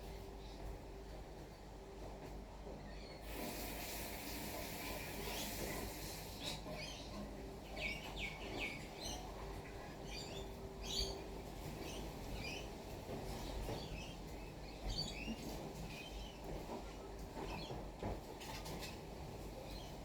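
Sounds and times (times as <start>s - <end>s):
birds chirping: 4.6s - 16.5s.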